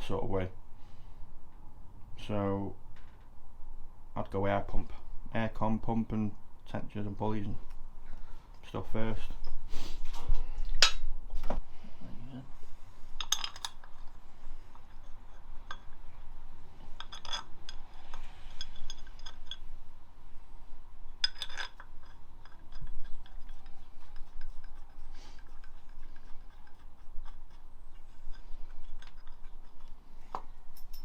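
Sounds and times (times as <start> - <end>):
metal tools clinking and rattling: 13.2 - 14.2, 17.0 - 19.7, 21.2 - 22.9, 30.6 - 31.0.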